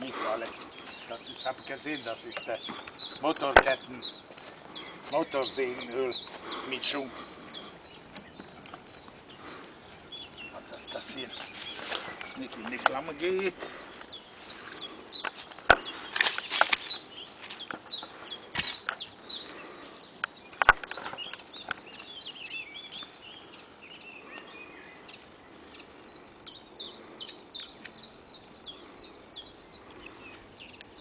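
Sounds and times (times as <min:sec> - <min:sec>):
small birds chirping: 0:00.0 - 0:31.0
sharp cracks: 0:20.6 - 0:21.2.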